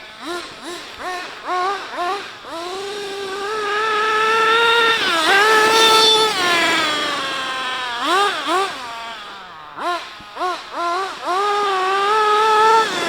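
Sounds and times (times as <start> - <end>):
rc car engine revving: 0.0 - 13.0.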